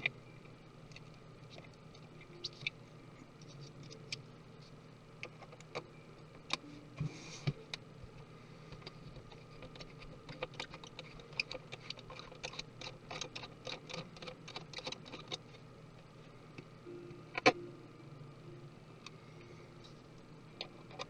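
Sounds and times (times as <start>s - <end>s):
small tools clicking and tapping: 8.7s - 15.6s.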